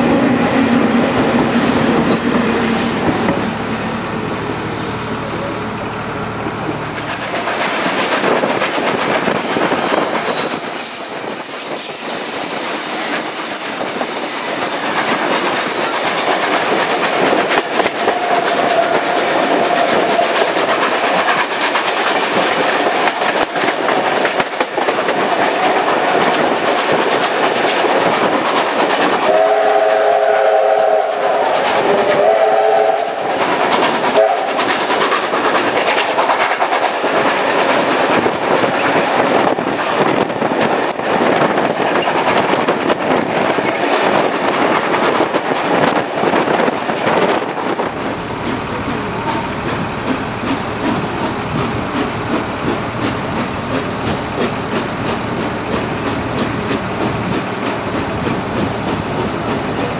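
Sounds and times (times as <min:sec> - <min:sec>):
wheels clickety-clack on rails: 0:00.0 - 0:59.9
wind: 0:00.0 - 0:59.9
train whistle chord: 0:29.3 - 0:33.3, 0:34.2 - 0:34.6.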